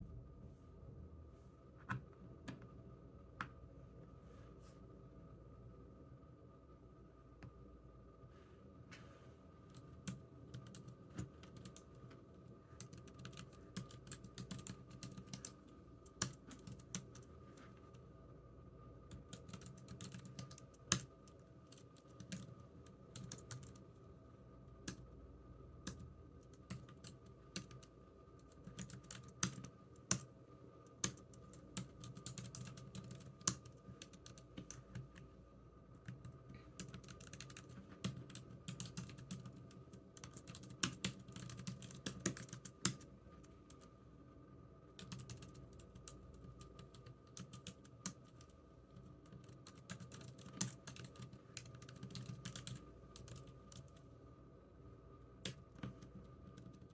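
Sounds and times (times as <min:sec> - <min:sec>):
faint steady hum: 0:00.0 - 0:56.9
keyboard typing: 0:09.7 - 0:12.0, 0:12.8 - 0:17.3, 0:19.1 - 0:23.8, 0:25.9 - 0:30.3, 0:31.0 - 0:35.2, 0:36.0 - 0:43.1, 0:45.0 - 0:54.0.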